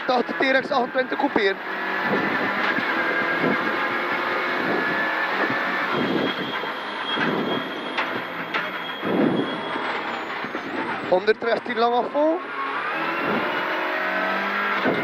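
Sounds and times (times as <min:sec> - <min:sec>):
car engine revving high: 0:00.0 - 0:08.3, 0:12.3 - 0:15.0.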